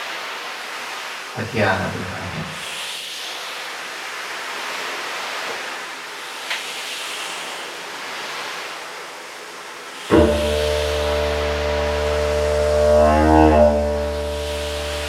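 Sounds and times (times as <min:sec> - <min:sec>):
ocean surf: 0:00.0 - 0:12.7
didgeridoo drone: 0:10.1 - 0:15.0.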